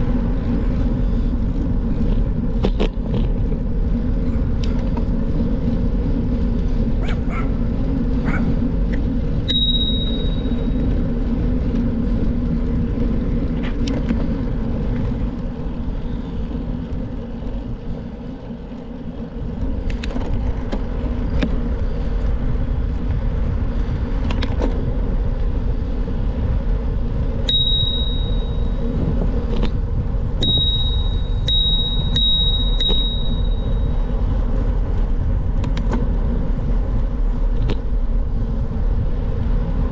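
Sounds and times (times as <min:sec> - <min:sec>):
wind and tyres rumbling: 0:00.0 - 0:39.9
bicycle clicks and knocks: 0:01.5 - 0:07.4, 0:08.3 - 0:38.0
bicycle bell ringing: 0:09.5 - 0:10.9, 0:27.5 - 0:28.8, 0:30.4 - 0:34.1.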